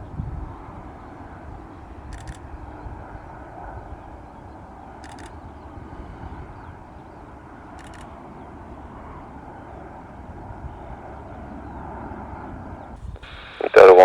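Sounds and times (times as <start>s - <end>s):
distant jet airliner rumble: 0.0s - 14.0s.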